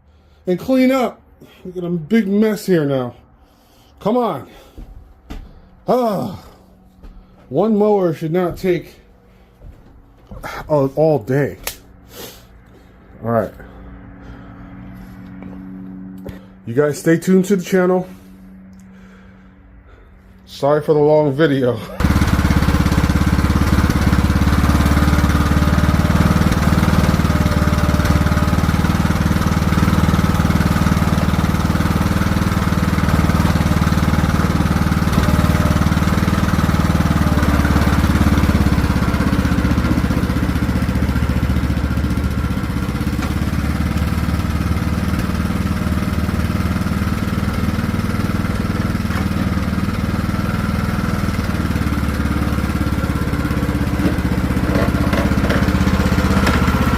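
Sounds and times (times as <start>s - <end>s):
riding lawn mower engine running: 11.6s - 56.9s.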